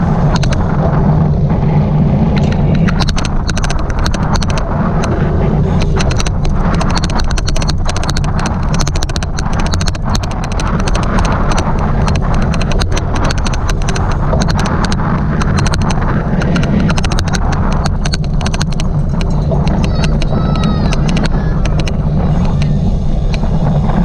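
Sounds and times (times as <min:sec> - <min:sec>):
bike riding rumble: 0:00.0 - 0:24.0
rapid irregular clicking: 0:00.0 - 0:24.0.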